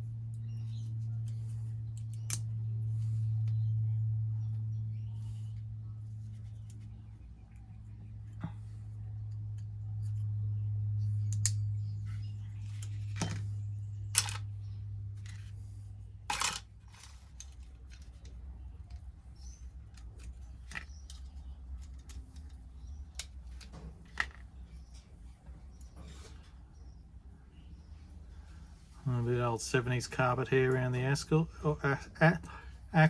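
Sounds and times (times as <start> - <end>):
small metal parts clicking: 14.1 - 14.5, 16.3 - 24.5.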